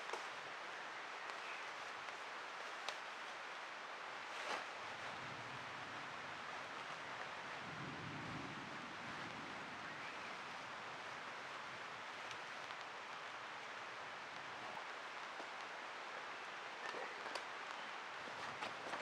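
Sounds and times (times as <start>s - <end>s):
light rain hiss: 0.0s - 19.0s
faint low rumble: 4.5s - 19.0s.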